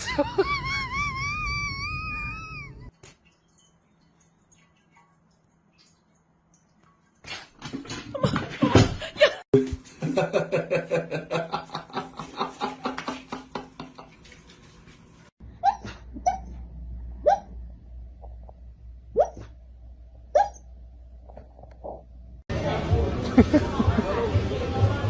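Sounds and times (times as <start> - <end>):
people laughing: 0.0 - 1.4, 8.2 - 14.1, 23.1 - 24.4.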